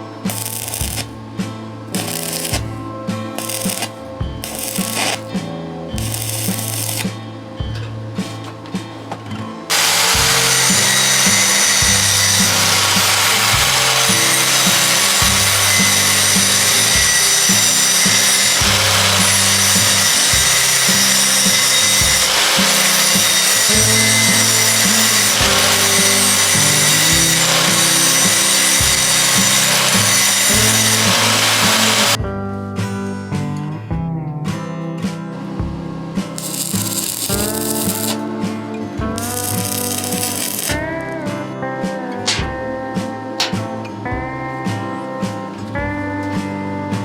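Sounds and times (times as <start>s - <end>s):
background music: 0.0s - 47.0s
power tool running: 0.3s - 1.1s, 2.0s - 2.7s, 3.4s - 5.2s, 6.0s - 7.1s, 9.7s - 32.2s, 36.4s - 38.2s, 39.2s - 40.8s.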